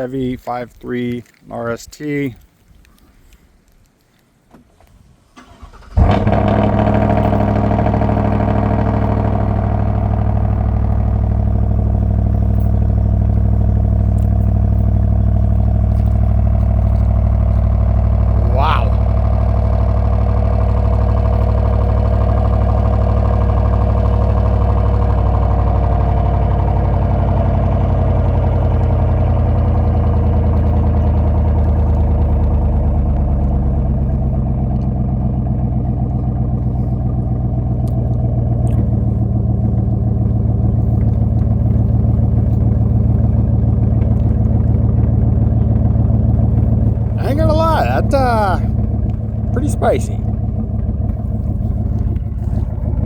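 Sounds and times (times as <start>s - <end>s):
unmuffled engine idling: 5.4s - 53.0s.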